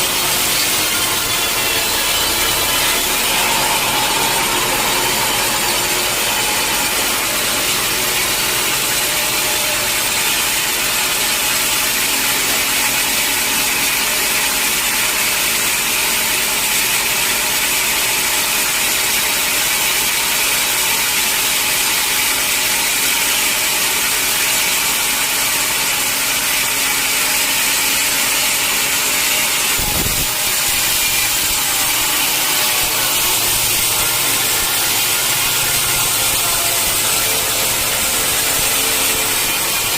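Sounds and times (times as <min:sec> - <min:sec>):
saw cutting through log: 0:00.0 - 0:39.9.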